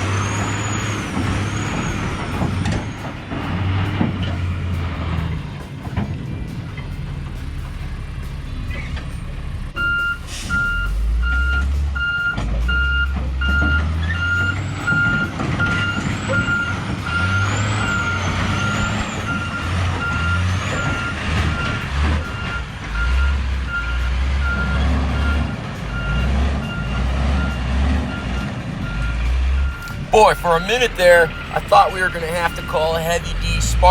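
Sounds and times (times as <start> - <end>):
heavy truck diesel engine: 0.0 - 33.9
reversing alarm beeping: 9.8 - 33.9.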